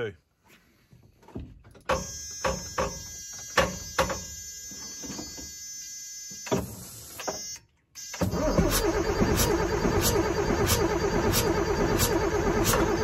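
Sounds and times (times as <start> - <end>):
starter motor cranking engine: 8.2 - 13.0.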